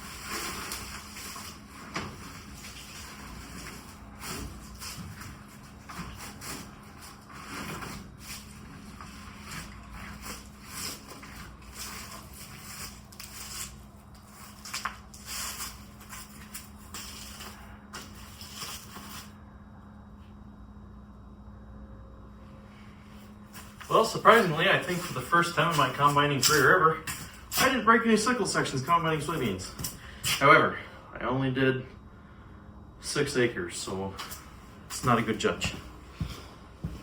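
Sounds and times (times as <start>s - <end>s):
scraping and rustling straw: 0.0s - 19.4s
steady low hum: 0.0s - 37.0s.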